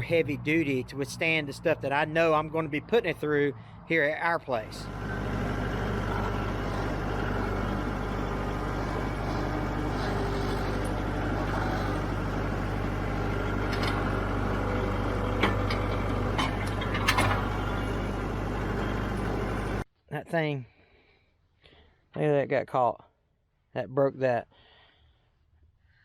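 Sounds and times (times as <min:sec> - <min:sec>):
diesel tractor engine running: 0:00.0 - 0:19.8
short metallic clanks: 0:15.4 - 0:17.7.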